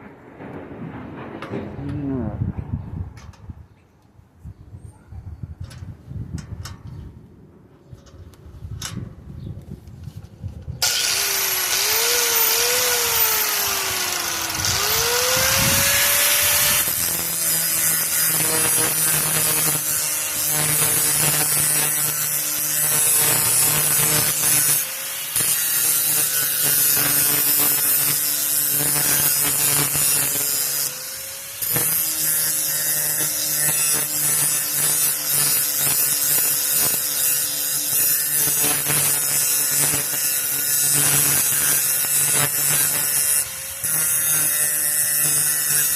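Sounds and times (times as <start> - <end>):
grinder grinding metal: 10.8 - 45.9.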